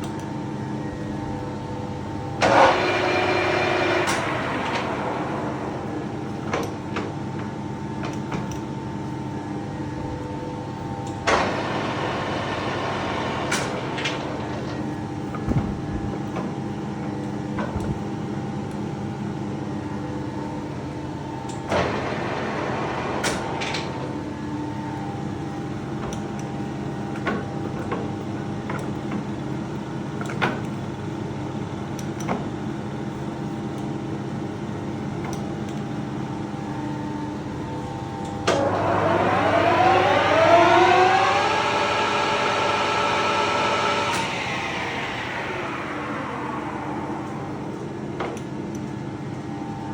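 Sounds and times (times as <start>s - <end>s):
lathe humming with gear whine: 0.5s - 7.8s, 37.8s - 49.9s.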